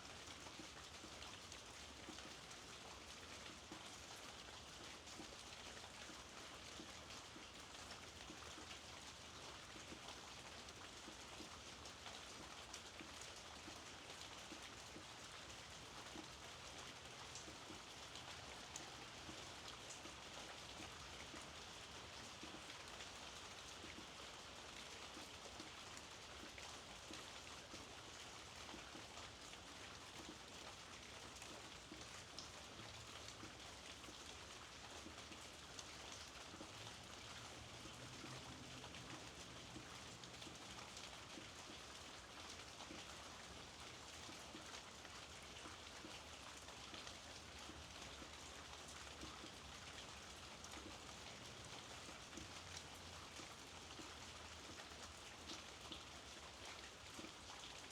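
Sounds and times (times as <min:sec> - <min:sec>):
soft rainfall: 0:00.0 - 0:57.9.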